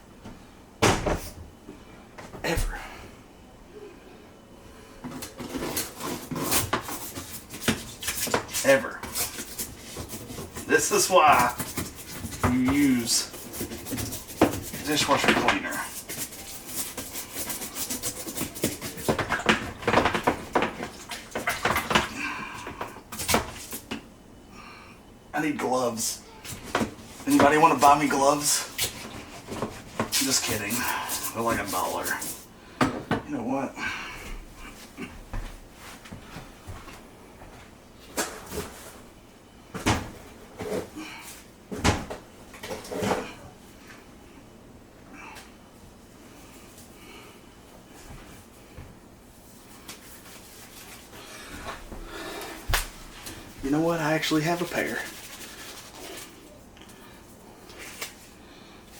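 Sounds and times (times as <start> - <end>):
cupboard doors opening and shutting: 0.8 - 1.4
brush scrubbing: 5.5 - 19.8, 27.2 - 32.5, 50.0 - 51.5, 53.6 - 56.6.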